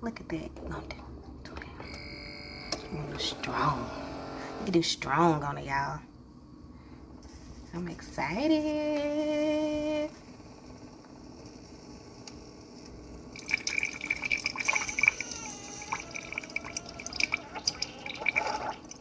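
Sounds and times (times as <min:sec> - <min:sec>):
coffee spluttering into a cup: 0:13.3 - 0:19.0.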